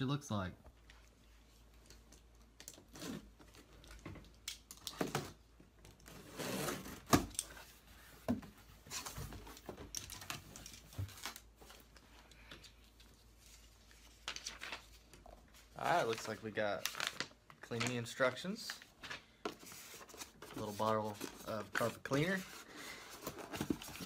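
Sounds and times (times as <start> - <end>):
packing rustling and crinkling: 15.8 - 24.0.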